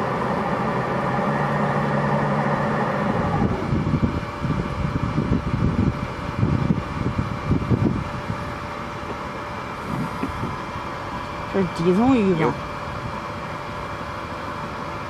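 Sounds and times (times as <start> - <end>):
low wavering sounds: 0.0 - 8.1
boat engine running: 0.0 - 15.0.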